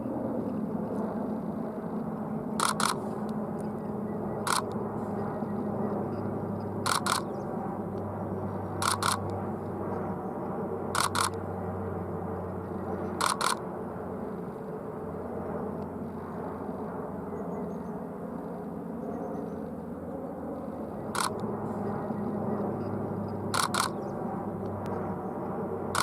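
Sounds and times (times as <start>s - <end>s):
low engine drone: 0.0s - 26.0s
camera shutter firing: 2.6s - 3.0s, 4.5s - 4.7s, 6.9s - 7.3s, 8.8s - 9.2s, 11.0s - 11.4s, 13.2s - 13.6s, 21.2s - 21.4s, 23.6s - 24.0s.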